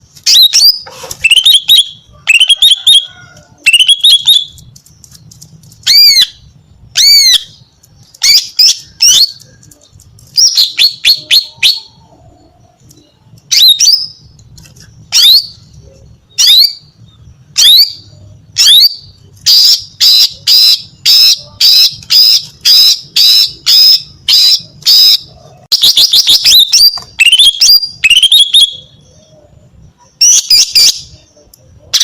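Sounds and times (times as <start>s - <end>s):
bird whistling calls: 0.3s - 4.6s, 10.3s - 16.9s, 17.5s - 32.0s.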